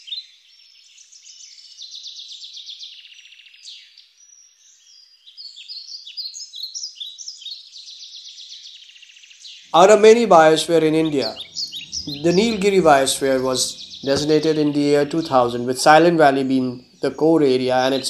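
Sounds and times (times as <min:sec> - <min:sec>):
birds chirping and trilling: 0:00.0 - 0:18.0.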